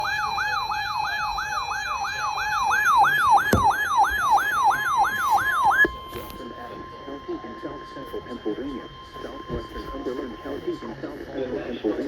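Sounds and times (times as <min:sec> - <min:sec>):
electronic siren alert tone: 0:00.0 - 0:06.3.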